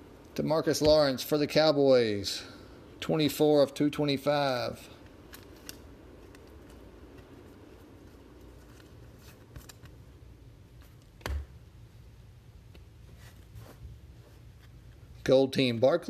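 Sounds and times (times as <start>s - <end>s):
trading cards rustling: 5.0s - 10.1s.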